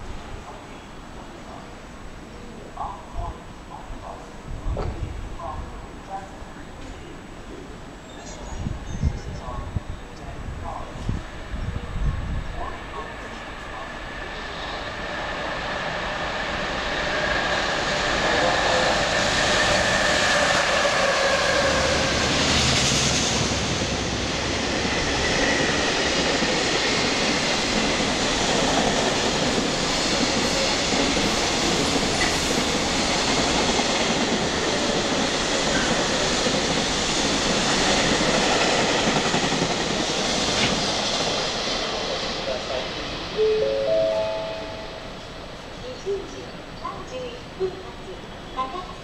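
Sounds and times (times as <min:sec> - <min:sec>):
freight train wheels clickety-clack: 0:14.4 - 0:43.2.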